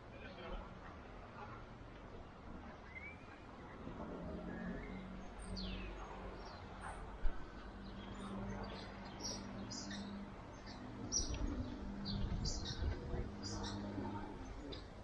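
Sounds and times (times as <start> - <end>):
small birds chirping: 7.6 - 15.0.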